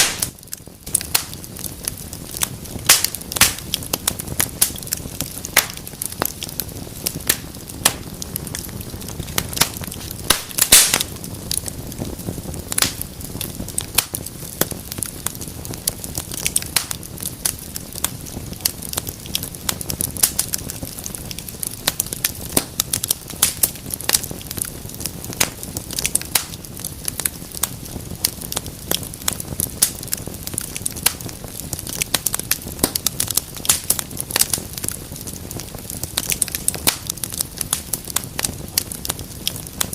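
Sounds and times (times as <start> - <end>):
flame rushing: 0.0 - 39.9
wood fire crackling: 0.0 - 39.9.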